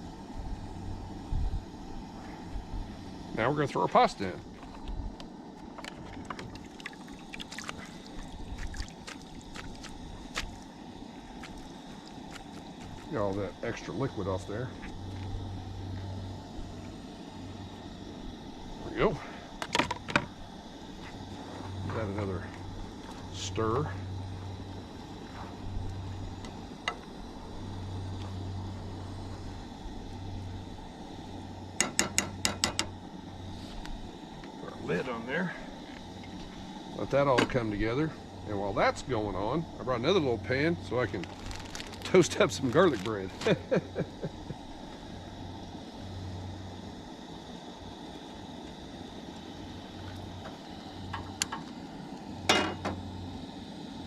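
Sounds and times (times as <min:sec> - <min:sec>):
camp stove burner rushing: 0:00.0 - 0:54.0
steady low hum: 0:00.0 - 0:54.0
pasta simmering in pan: 0:04.6 - 0:13.1
sharp clicks of utensil on pan: 0:31.8 - 0:32.9.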